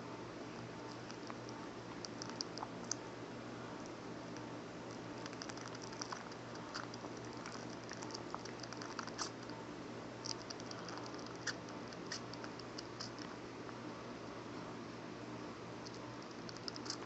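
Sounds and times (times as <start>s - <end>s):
kitten sucking clicks: 0.9s - 3.0s, 4.3s - 9.5s, 10.2s - 13.4s, 15.8s - 17.0s.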